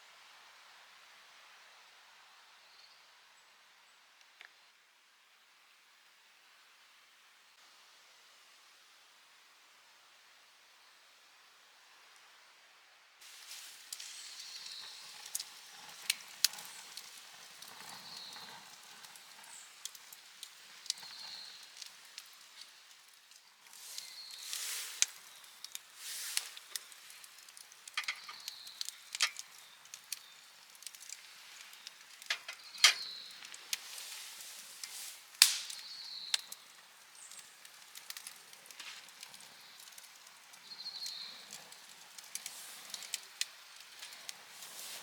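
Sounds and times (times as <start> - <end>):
wood fire crackling and popping: 13.2 - 45.0.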